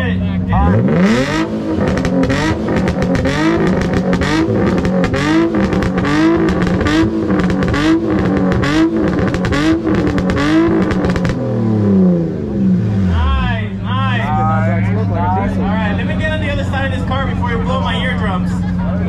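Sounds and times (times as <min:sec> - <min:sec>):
car engine bouncing on rev limiter: 0:00.6 - 0:13.2
exhaust pops and crackles: 0:01.3 - 0:11.5.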